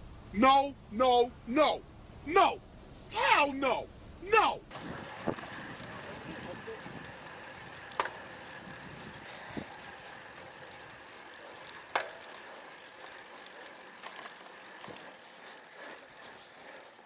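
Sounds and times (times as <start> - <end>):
bicycle freehub ticking: 4.7 - 17.0.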